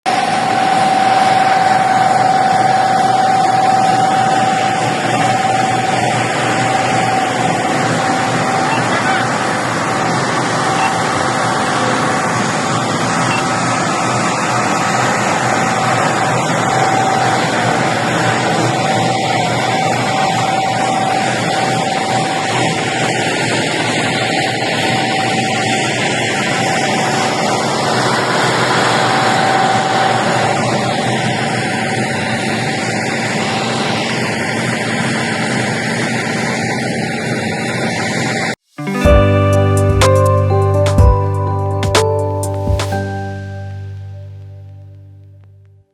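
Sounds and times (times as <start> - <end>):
broad rushing noise: 0.1 - 36.6
faint steady whine: 0.1 - 38.5
engine running: 0.1 - 45.7.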